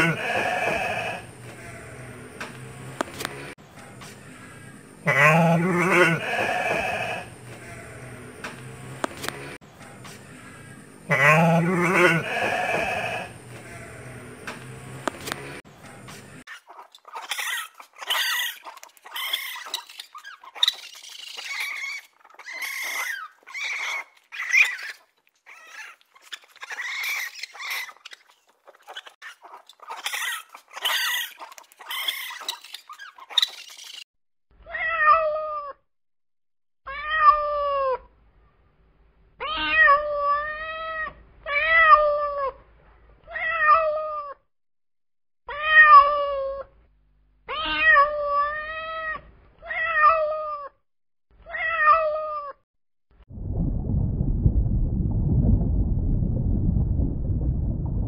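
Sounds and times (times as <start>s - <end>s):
raccoons chittering and squealing: 16.5s - 34.0s
cat meowing: 47.5s - 50.7s.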